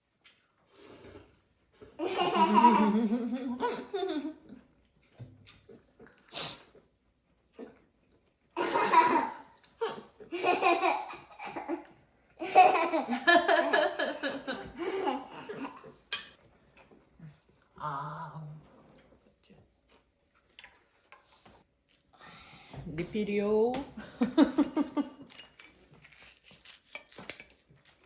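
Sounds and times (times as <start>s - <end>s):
small child laughing: 2.0s - 4.4s, 8.6s - 15.9s.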